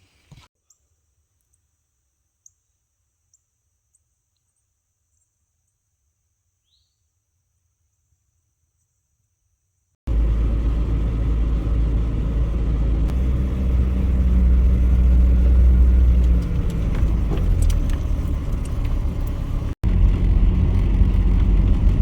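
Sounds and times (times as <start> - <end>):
truck engine and road rumble: 10.1 - 22.0.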